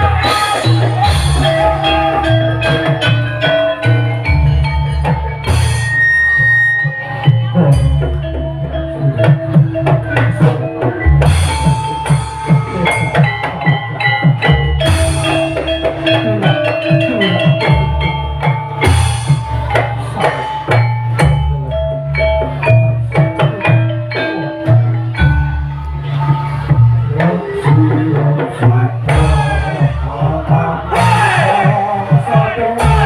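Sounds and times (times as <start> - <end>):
drums beating: 0.0 - 33.0
mallet-struck pitched notes: 0.0 - 33.0.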